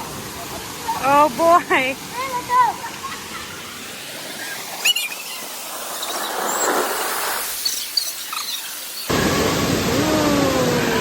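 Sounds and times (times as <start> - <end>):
rush of water: 0.0 - 11.0
high squeaks: 4.8 - 9.1.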